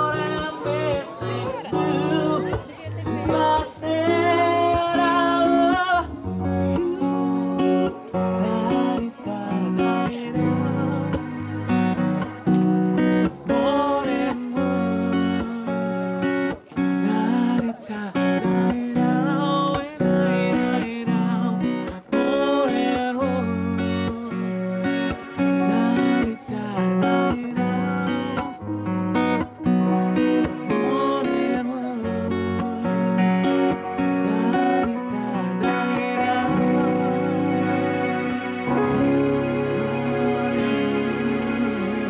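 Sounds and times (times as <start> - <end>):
acoustic guitar strummed: 0.0 - 42.0.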